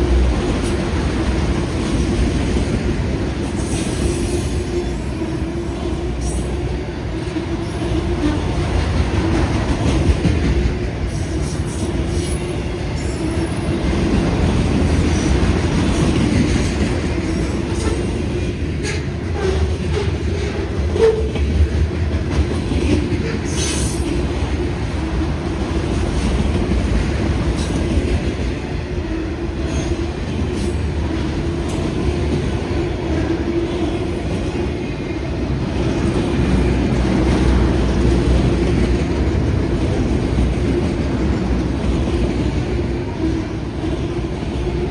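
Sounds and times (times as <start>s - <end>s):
train wheels rumbling on rails: 0.0s - 44.9s
rail joint clicks: 6.1s - 28.8s.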